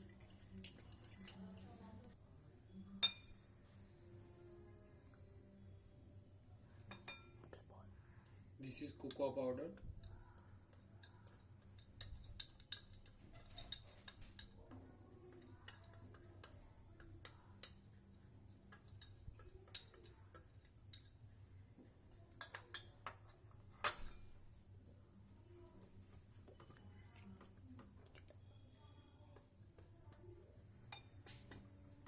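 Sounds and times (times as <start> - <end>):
spoon tapping against a mug: 3.0 - 3.4, 6.9 - 7.6, 8.9 - 21.4, 22.1 - 24.4, 25.7 - 32.0.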